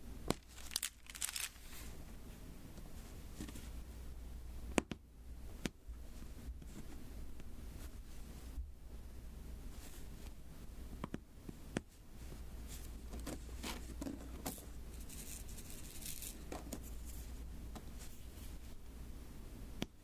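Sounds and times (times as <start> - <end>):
crackly sticky rustling: 0.3 - 2.0.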